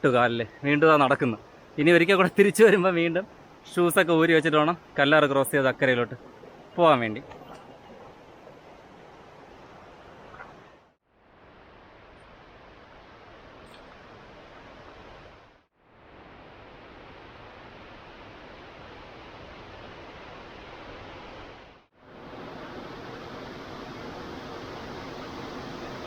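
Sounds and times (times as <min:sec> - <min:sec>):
waterfall rushing: 0:22.2 - 0:26.0.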